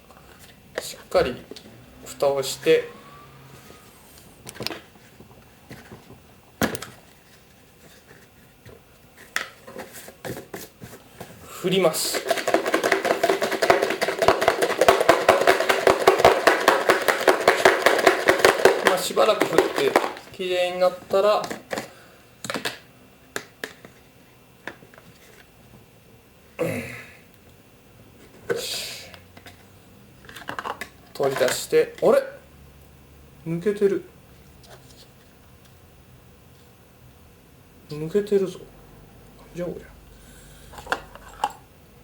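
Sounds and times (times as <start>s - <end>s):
container lid knocks and clicks: 12.1s - 20.2s.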